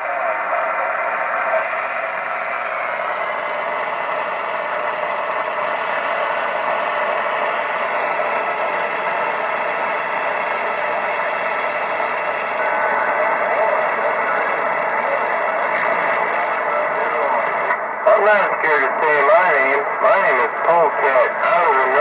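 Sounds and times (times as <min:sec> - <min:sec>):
radio static hiss: 0:12.3 - 0:22.0.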